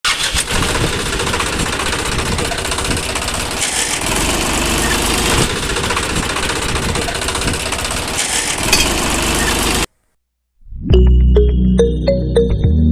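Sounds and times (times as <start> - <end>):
small engine rattling: 0.1 - 9.9.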